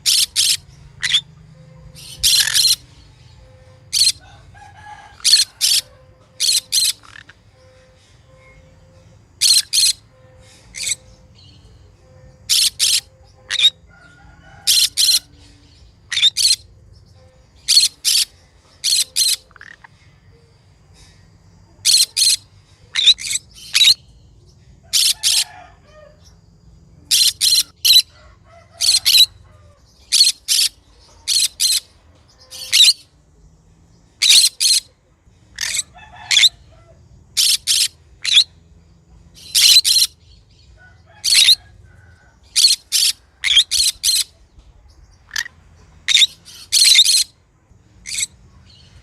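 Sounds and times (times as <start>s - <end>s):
parrot high sharp calls: 0.0s - 1.2s, 1.9s - 2.8s, 9.4s - 10.0s, 12.5s - 13.8s, 27.1s - 29.4s, 30.1s - 31.9s, 32.5s - 33.0s, 34.2s - 34.9s, 35.5s - 38.5s, 39.4s - 40.1s, 41.2s - 41.6s, 42.5s - 44.3s, 46.1s - 47.3s.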